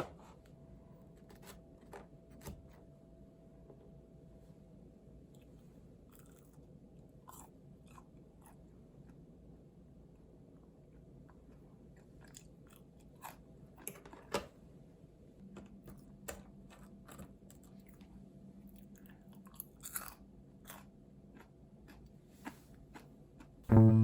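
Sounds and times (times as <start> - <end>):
food being chewed crunchily: 6.1 - 9.3, 11.2 - 14.3, 16.6 - 23.6.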